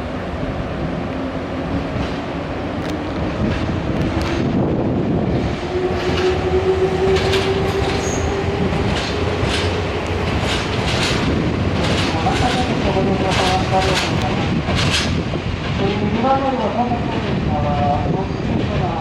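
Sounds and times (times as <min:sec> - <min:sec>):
steady train drone: 0:00.0 - 0:19.0
train wheels clacking over rail joints: 0:06.0 - 0:19.0.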